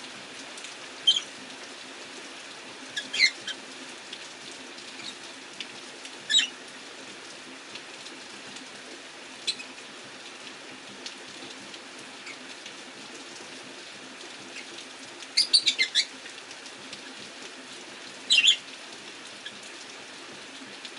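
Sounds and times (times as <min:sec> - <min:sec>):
rain hissing: 0:00.0 - 0:20.9
parrots chirping: 0:15.4 - 0:16.1, 0:18.3 - 0:18.6.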